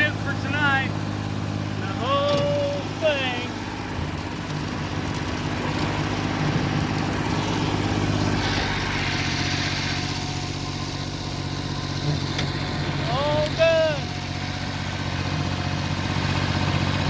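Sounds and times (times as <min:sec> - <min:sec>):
tractor engine running: 0:00.0 - 0:17.0
high rushing hiss: 0:06.2 - 0:12.0.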